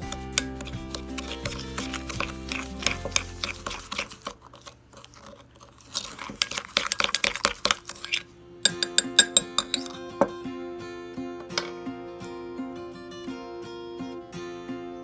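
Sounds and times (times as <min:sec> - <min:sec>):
background music: 0:00.0 - 0:04.0, 0:08.4 - 0:15.0
utensil clinking against a dish: 0:00.0 - 0:10.4.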